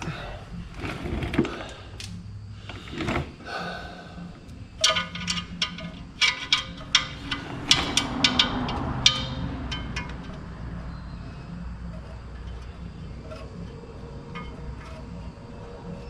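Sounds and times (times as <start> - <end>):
metal tools clinking: 4.8 - 11.3.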